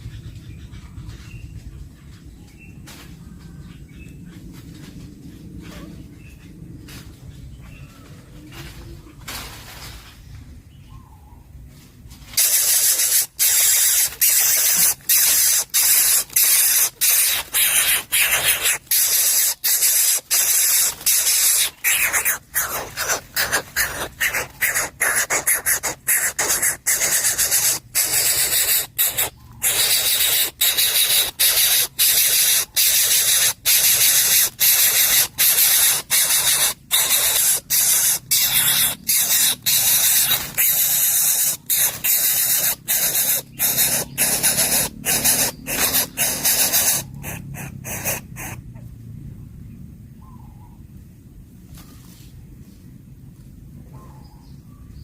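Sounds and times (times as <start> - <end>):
bird chick hissing: 12.3 - 48.6.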